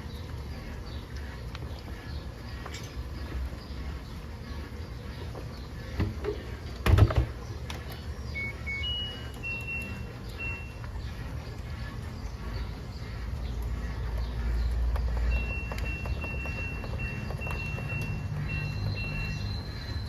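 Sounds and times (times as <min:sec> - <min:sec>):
washing machine beeps: 0:07.8 - 0:11.9, 0:14.3 - 0:20.0.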